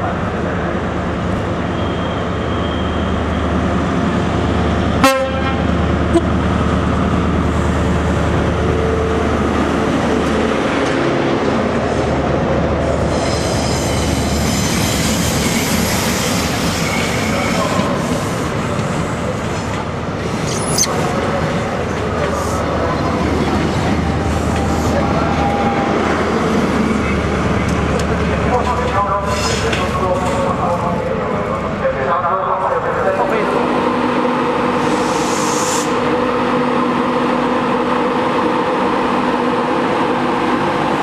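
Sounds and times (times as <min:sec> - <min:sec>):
carriages rumbling on rails: 0:00.0 - 0:41.0
diesel train passing: 0:00.0 - 0:41.0
wheels squealing: 0:20.3 - 0:21.2.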